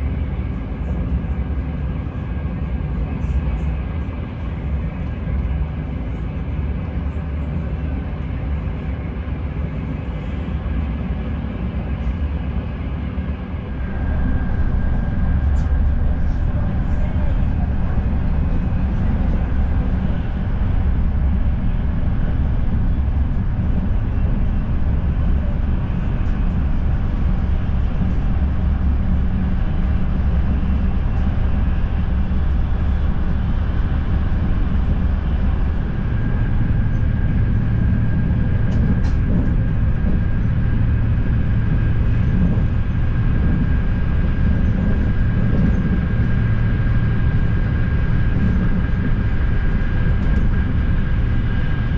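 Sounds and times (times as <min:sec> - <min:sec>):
low hum: 0:00.0 - 0:51.9
train running gear rumble: 0:00.0 - 0:51.9
high whine: 0:13.3 - 0:51.9.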